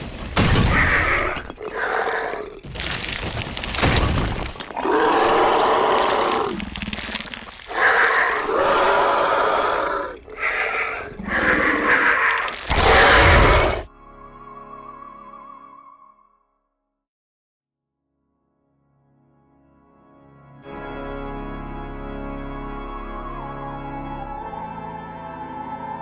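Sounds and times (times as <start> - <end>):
crashing and breaking: 0.0 - 1.8, 2.6 - 7.8
monster growls and roars: 0.4 - 13.9.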